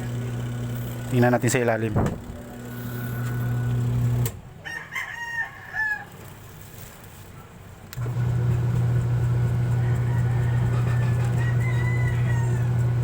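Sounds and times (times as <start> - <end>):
washing machine motor humming: 0.0 - 4.4, 8.0 - 13.0
rooster crowing: 2.7 - 3.8, 4.6 - 6.2, 9.6 - 13.0.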